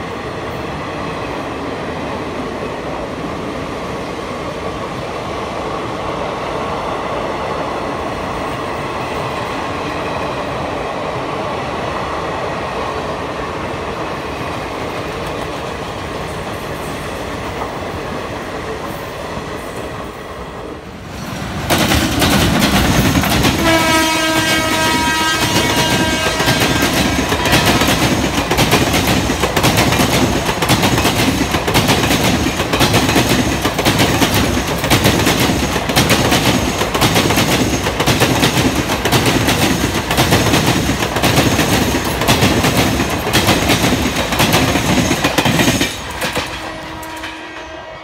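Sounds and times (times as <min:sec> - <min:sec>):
train wheels clattering over rail joints: 0:21.3 - 0:47.5
train horn: 0:23.5 - 0:28.0, 0:46.0 - 0:48.0.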